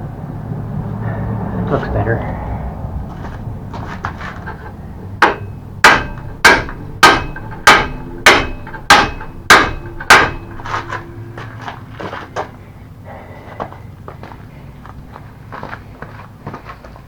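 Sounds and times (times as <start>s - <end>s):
hammer striking metal pin: 5.2s - 11.4s.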